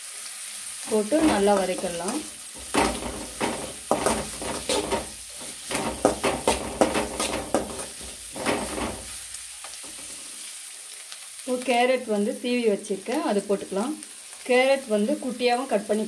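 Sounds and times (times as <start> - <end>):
onions sizzling in oil: 0.0 - 16.0
metal spatula scraping pan: 0.9 - 10.3.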